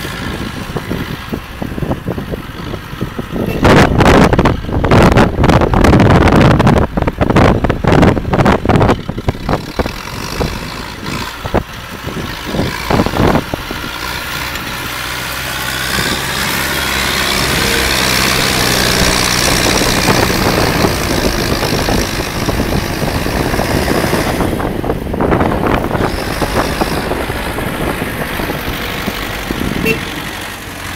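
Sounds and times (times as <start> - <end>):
tractor diesel engine idling: 6.7 - 30.9.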